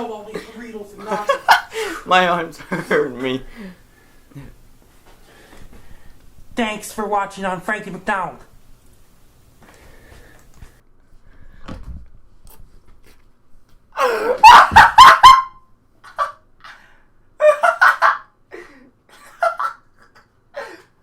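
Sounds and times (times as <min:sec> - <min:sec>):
man laughing hard: 0:14.0 - 0:16.4, 0:17.4 - 0:20.9.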